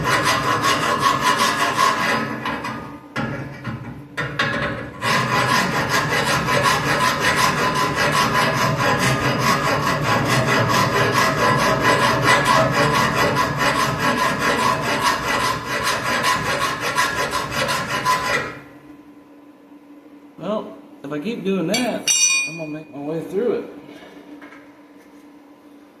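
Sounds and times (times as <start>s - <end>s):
constant hum: 18.2s - 26.0s.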